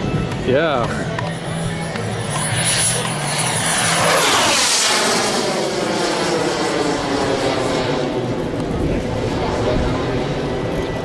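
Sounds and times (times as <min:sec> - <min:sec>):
model airplane flying past: 0:00.0 - 0:11.0.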